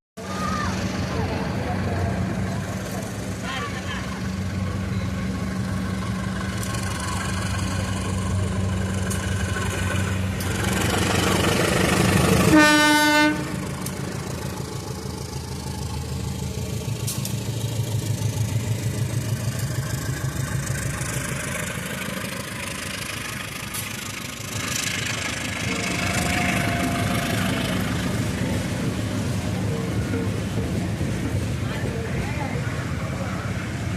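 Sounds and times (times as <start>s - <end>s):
diesel locomotive engine: 0.2s - 33.9s
wheels clattering on rail joints: 0.4s - 33.9s
train horn blast: 12.4s - 13.7s, 25.7s - 28.2s.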